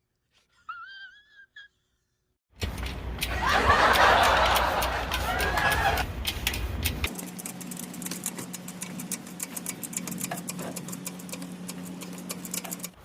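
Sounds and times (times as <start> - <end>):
rapid clicking: 2.6 - 13.0.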